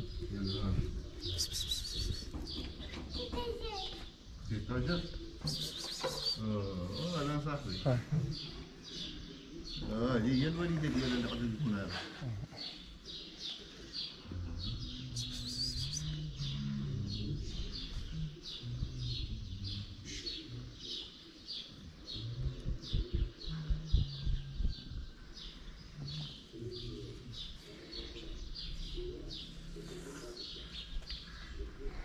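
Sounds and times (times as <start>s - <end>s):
pigeons cooing: 0.0s - 3.4s, 5.1s - 32.0s
small bird chirping: 0.6s - 4.0s, 5.1s - 7.8s, 12.7s - 31.6s.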